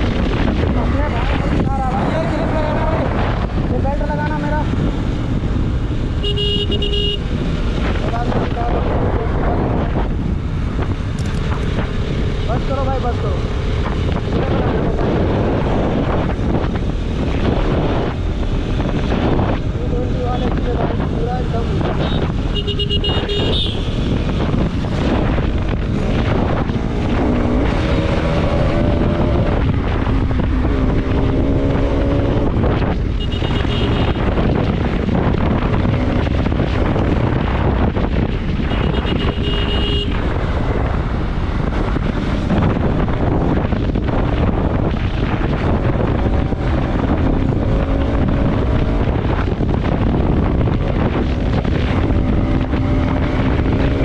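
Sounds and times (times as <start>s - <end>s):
motorcycle engine revving: 0.0s - 54.0s
wind buffeting microphone: 0.0s - 54.0s
horn beeps: 6.2s - 7.2s.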